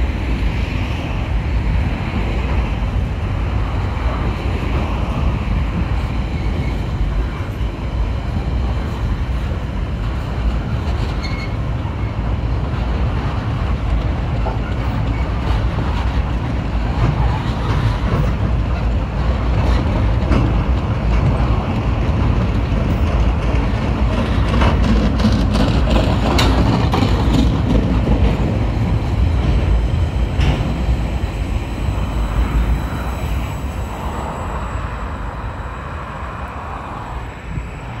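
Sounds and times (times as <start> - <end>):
freight train rumbling past: 0.0 - 38.0
wheels clicking and clacking: 9.4 - 34.1.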